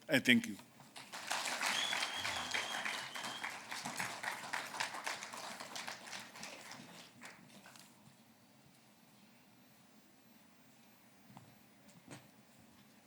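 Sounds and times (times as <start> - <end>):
audience applauding: 0.9 - 7.8.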